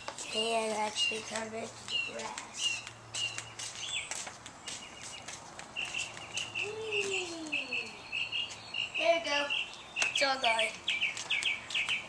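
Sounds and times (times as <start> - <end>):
rising and falling bird call: 4.7 - 12.0.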